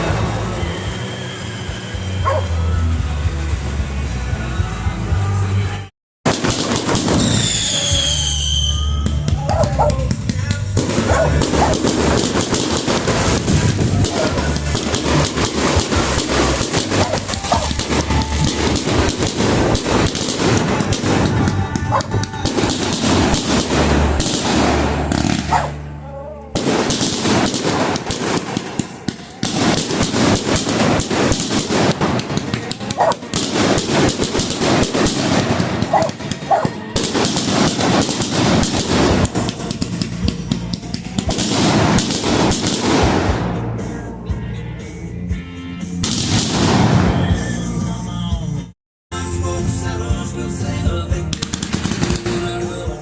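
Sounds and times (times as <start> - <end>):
fireworks crackling pops: 6.3 - 25.8, 26.6 - 43.6, 51.3 - 52.8.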